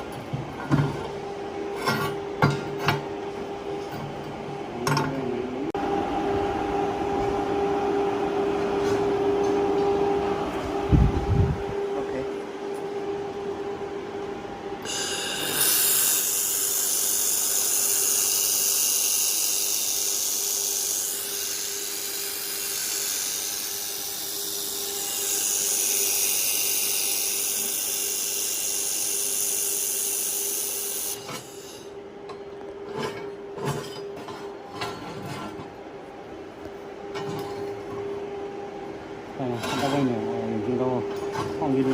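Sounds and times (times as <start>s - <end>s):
cooling fans humming: 0.0s - 41.9s
laser welder hissing: 14.8s - 31.9s.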